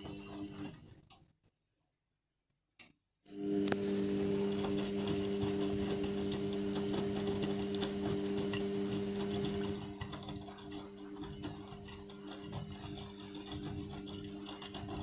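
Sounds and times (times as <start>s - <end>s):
washing machine motor hum: 3.3s - 15.0s.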